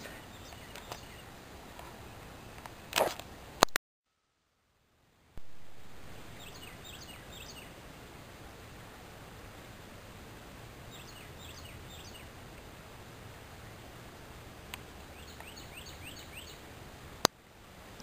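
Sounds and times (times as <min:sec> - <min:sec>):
bird chirping: 0:00.0 - 0:02.6, 0:05.7 - 0:07.8, 0:10.9 - 0:12.4, 0:15.1 - 0:16.7
background hiss: 0:00.0 - 0:18.0.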